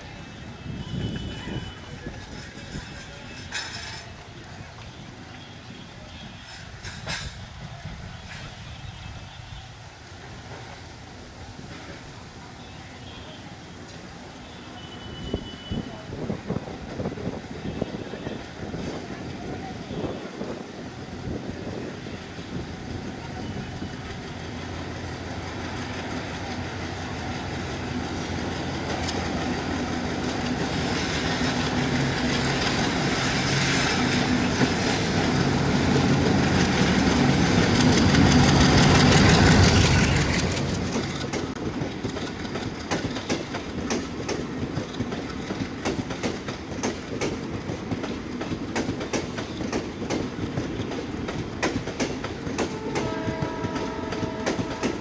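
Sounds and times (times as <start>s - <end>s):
diesel locomotive passing: 0.0s - 55.0s
train wheels clicking over rail joints: 1.9s - 5.0s, 6.3s - 8.8s, 22.3s - 55.0s.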